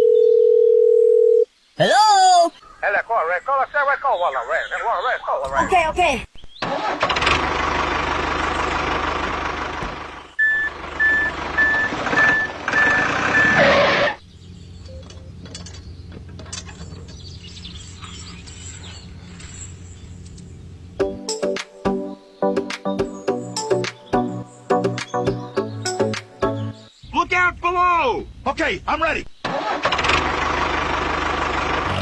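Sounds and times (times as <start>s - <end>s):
heavy vehicle engine running: 7.0s - 21.0s, 29.8s - 32.0s
reversing beeper: 10.4s - 14.0s
music: 21.0s - 26.9s.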